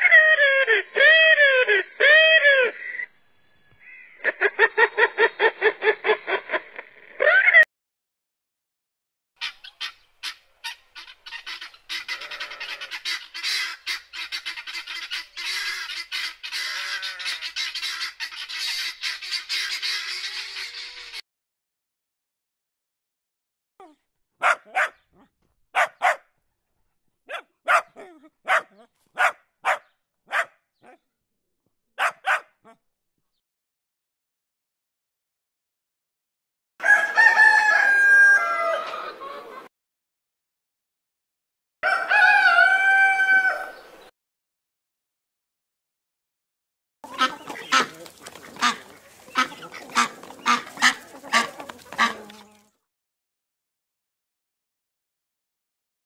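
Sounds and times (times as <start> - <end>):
puppies yapping: 24.4 - 26.2, 27.3 - 31.0, 32.0 - 32.5, 47.0 - 52.6
duck quacking: 47.0 - 52.6.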